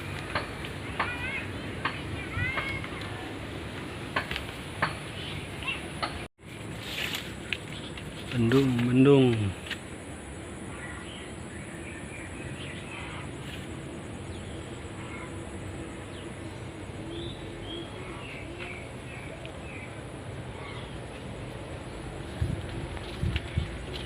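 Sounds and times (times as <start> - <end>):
birds chirping: 0.0 - 6.3, 7.4 - 24.0
steady high-pitched whine: 9.5 - 24.0.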